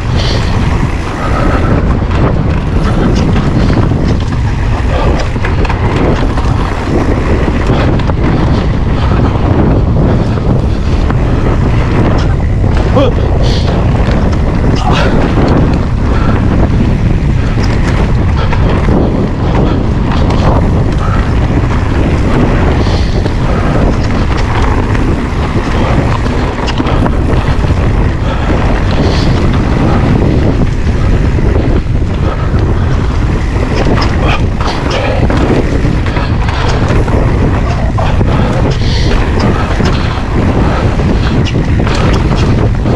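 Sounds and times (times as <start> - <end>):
bike knocks and rattles: 0.0 - 42.9
wind buffeting microphone: 0.0 - 42.9.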